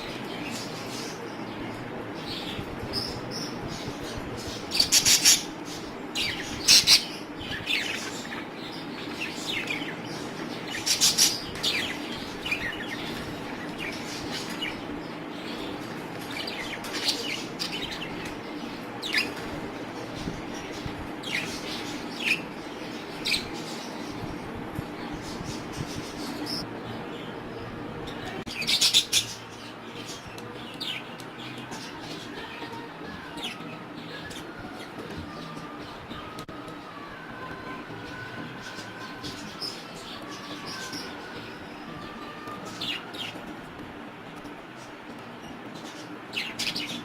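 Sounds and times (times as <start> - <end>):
budgerigars chirping: 4.7 - 9.9, 28.6 - 30.1.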